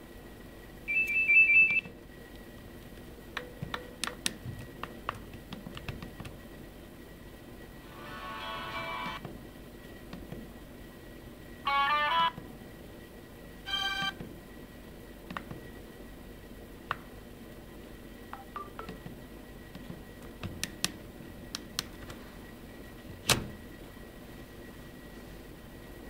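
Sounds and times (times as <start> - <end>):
short electronic beeps: 0.9 - 1.9.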